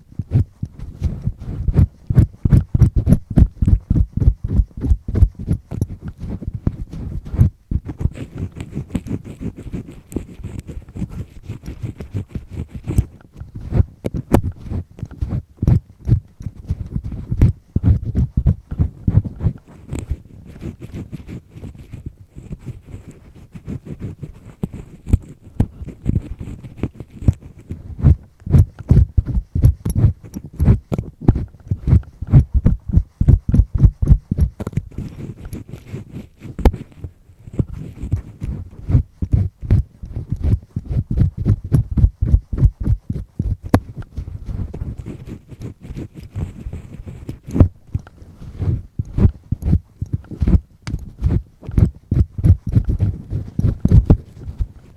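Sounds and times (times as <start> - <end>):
earpick scraping inside ear: 0.0 - 54.9
muffled thuds: 0.2 - 8.0, 13.4 - 19.6, 28.0 - 35.0, 36.5 - 45.0, 46.7 - 54.8.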